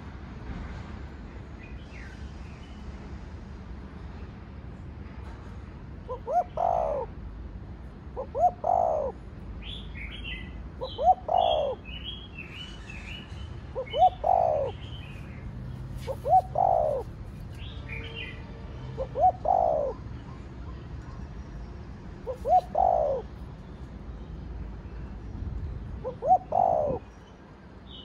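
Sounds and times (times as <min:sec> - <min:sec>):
dove cooing: 0:06.1 - 0:07.1, 0:08.2 - 0:09.2, 0:10.8 - 0:11.8, 0:13.8 - 0:14.8, 0:16.0 - 0:17.2, 0:19.0 - 0:20.1, 0:22.2 - 0:23.3, 0:26.0 - 0:27.0.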